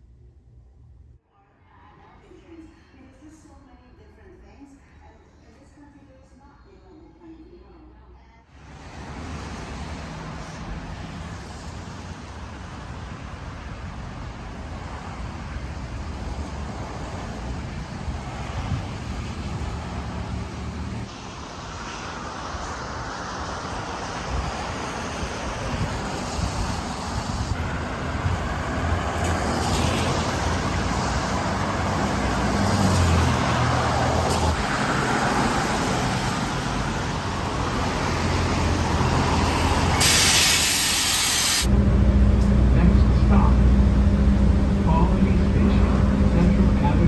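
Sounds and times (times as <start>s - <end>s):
city road traffic: 8.5s - 47.0s
heavy vehicle engine humming: 8.6s - 47.0s
hissing air burst: 39.4s - 41.7s.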